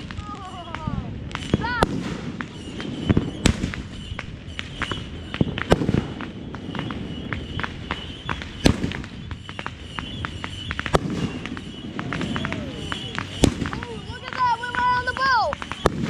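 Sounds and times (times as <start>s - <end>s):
fireworks bangs: 0.0s - 16.0s
fireworks crackling pops: 0.0s - 16.0s.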